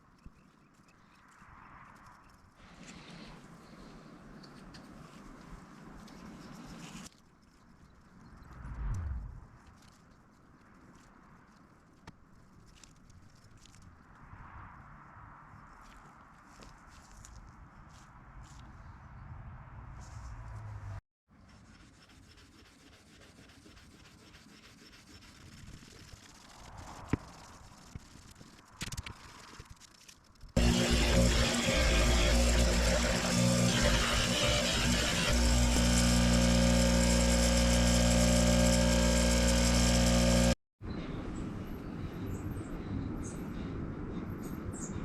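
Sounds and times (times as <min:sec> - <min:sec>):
low hum: 0:08.4 - 0:09.6, 0:30.6 - 0:40.6
electric power tool motor running: 0:30.6 - 0:40.6.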